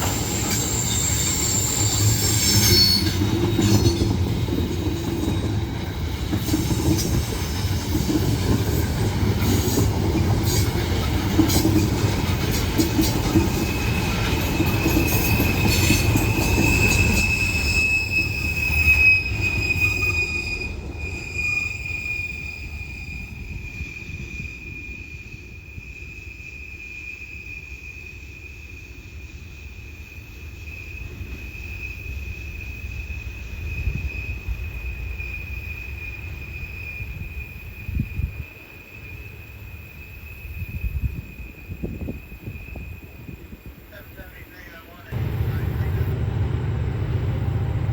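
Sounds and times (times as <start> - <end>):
high flange squeal: 0.0 - 4.0, 13.5 - 25.2
freight train wheels rumbling: 0.0 - 25.6, 44.0 - 47.9
steady high whine: 45.1 - 47.9.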